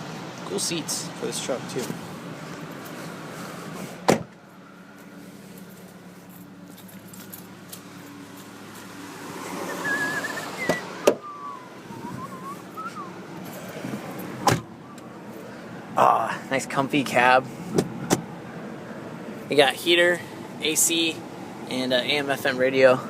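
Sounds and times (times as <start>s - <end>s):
low hum in truck cab: 0.0s - 23.0s
keys jingling: 6.3s - 8.2s
warbling whistle-like tone: 9.7s - 13.2s.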